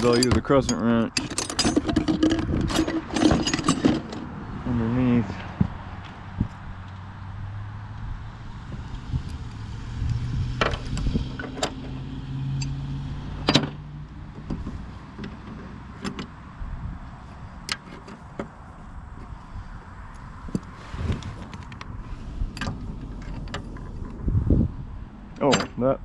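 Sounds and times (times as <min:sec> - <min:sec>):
wrench clinking on metal: 0:00.0 - 0:04.2.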